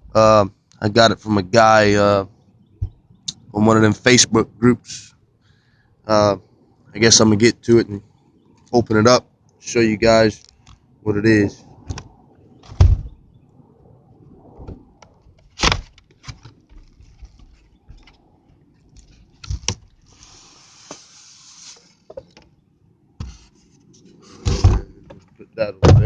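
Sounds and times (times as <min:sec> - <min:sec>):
scraping hiss: 0:20.0 - 0:22.1.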